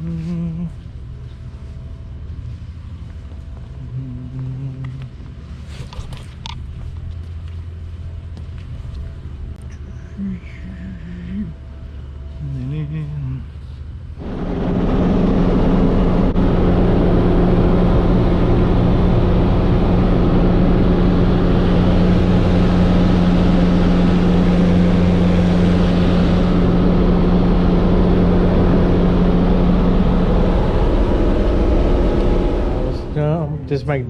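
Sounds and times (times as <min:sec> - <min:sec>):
helicopter drone: 0:14.2 - 0:34.0.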